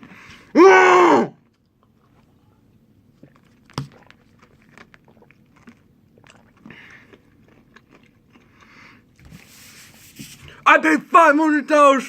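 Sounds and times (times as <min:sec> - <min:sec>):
man chewing peanuts: 0:01.4 - 0:09.4.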